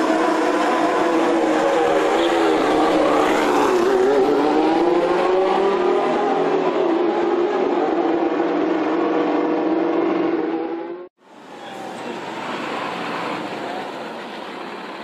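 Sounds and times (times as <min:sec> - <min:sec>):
racing car engine at high revs: 0:00.0 - 0:11.1.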